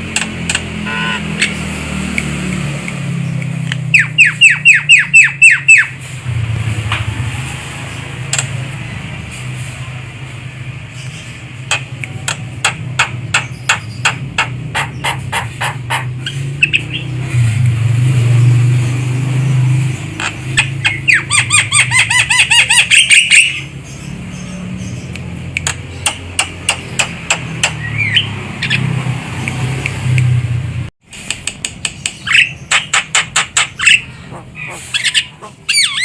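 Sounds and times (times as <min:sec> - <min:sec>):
bird calling with rattling chatter: 0:10.9 - 0:17.1, 0:19.9 - 0:29.0, 0:31.6 - 0:36.0.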